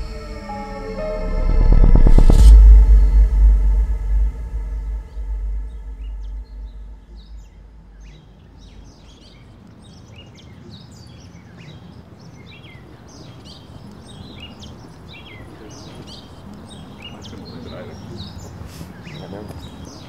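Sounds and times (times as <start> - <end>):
low drone: 0.0 - 9.4
songbirds chirping: 2.4 - 20.0.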